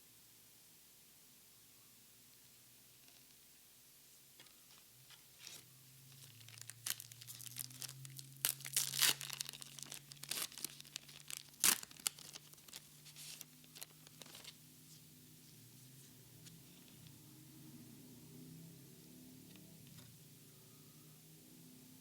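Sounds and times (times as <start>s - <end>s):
foil pack tearing and crinkling: 6.1s - 14.5s.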